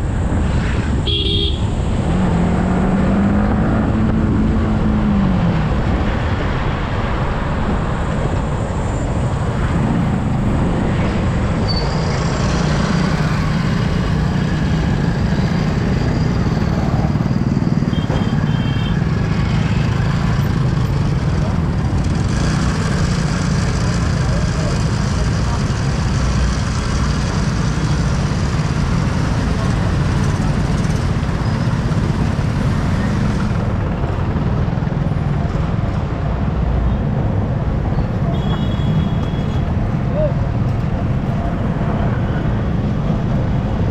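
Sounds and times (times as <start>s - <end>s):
wind rushing over microphone: 0.0s - 17.5s.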